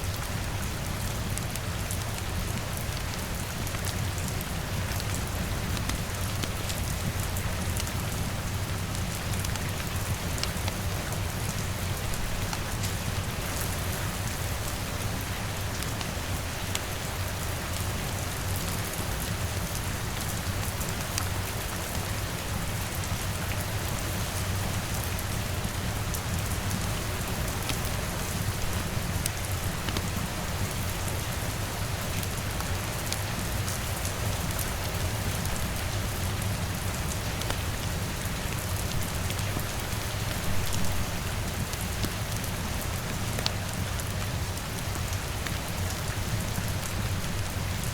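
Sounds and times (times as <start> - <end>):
rain on a window: 0.0 - 47.9
crackling fire: 24.9 - 33.3, 33.9 - 47.5.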